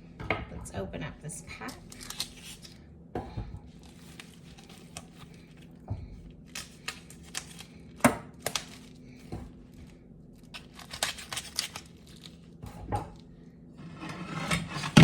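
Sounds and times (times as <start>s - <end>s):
plastic film tearing and crinkling: 1.6s - 2.8s, 3.8s - 5.6s, 6.4s - 9.2s, 10.4s - 12.6s.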